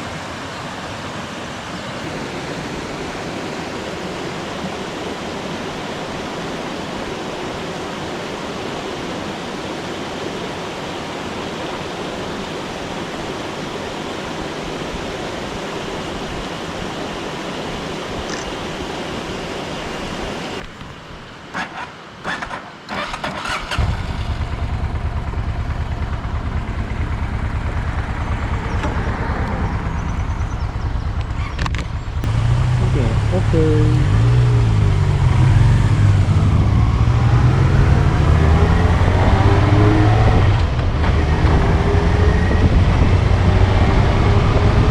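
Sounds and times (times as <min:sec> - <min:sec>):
stream rushing: 0:00.0 - 0:44.9
motorcycle engine running: 0:23.7 - 0:44.9.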